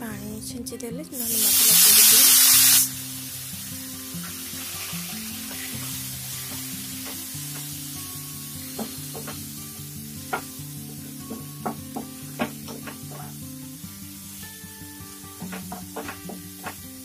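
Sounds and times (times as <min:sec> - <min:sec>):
masala sizzling in oil: 0:01.2 - 0:17.0
spatula tapping on pan: 0:08.7 - 0:09.4, 0:10.3 - 0:13.4, 0:15.4 - 0:16.8.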